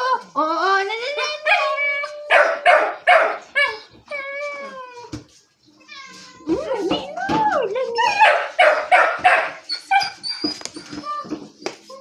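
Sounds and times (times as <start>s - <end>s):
dog yipping and barking: 2.3s - 3.9s, 8.0s - 10.6s
dog whining: 3.6s - 5.2s, 9.5s - 12.0s.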